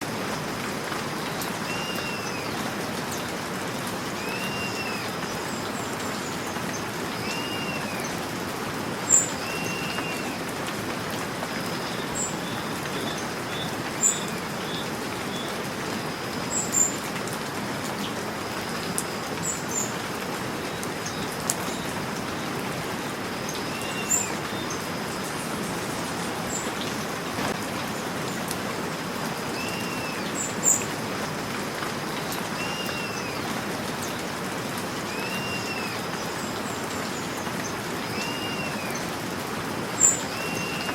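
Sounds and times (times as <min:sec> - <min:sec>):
steady rain falling: 0:00.0 - 0:40.9
bird call: 0:04.2 - 0:05.2, 0:07.2 - 0:08.1, 0:09.1 - 0:10.4, 0:32.6 - 0:33.4, 0:35.1 - 0:36.0, 0:38.1 - 0:39.0, 0:40.0 - 0:40.9.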